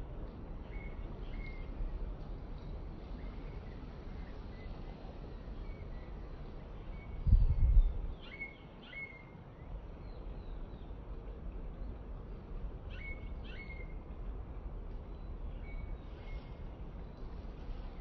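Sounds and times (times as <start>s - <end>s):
low outdoor rumble: 9.5s - 18.0s.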